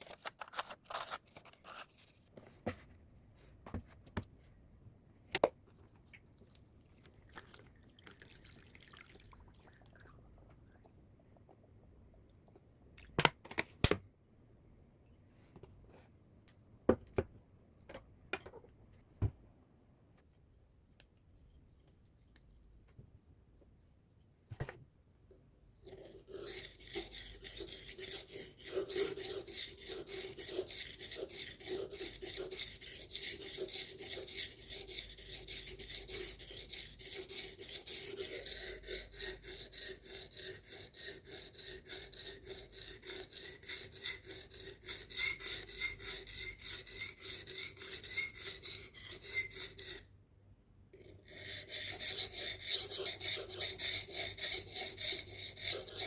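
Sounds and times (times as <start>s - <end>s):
knife scraping on sharpener: 25.8s - 50.1s, 51.0s - 56.0s.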